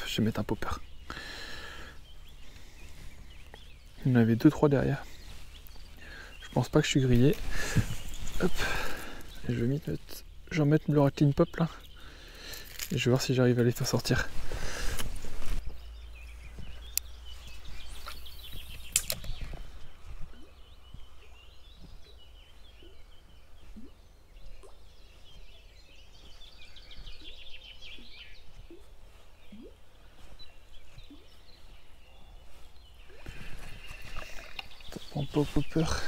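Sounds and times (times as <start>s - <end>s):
small birds chirping and trilling: 0.0s - 36.0s
sharp clicks: 18.7s - 19.6s.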